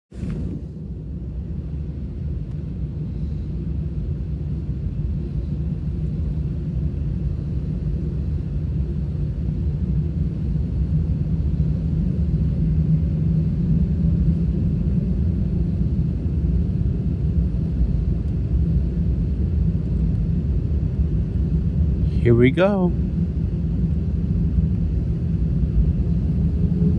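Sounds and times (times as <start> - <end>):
jet engine rumble and hum: 0.1 - 26.9.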